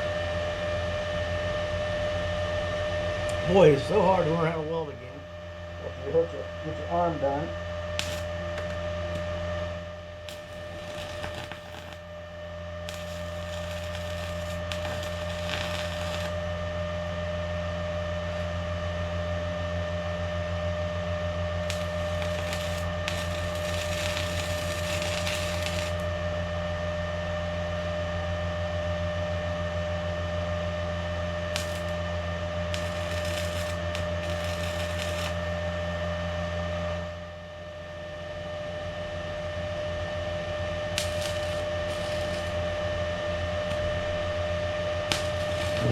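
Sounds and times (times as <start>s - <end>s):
steady hum: 0.0s - 27.7s, 30.1s - 45.9s
welding arc crackling: 7.8s - 16.5s, 21.6s - 26.2s, 31.5s - 35.6s, 40.8s - 45.9s.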